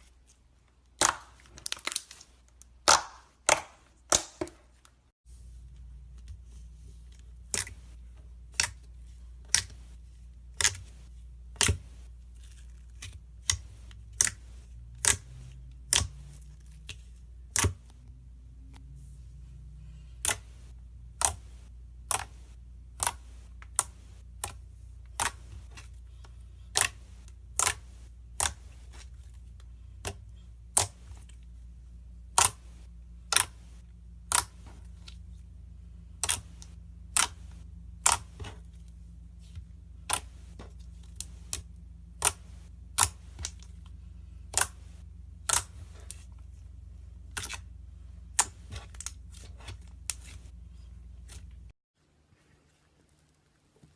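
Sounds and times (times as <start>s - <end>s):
steady low hum: 4.6s - 53.9s.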